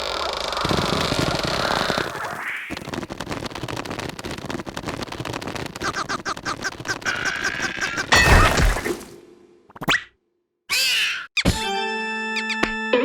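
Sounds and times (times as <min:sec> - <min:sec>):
cartoon rattle and crackle: 0:00.0 - 0:08.2
short squeaky calls: 0:10.7 - 0:11.4.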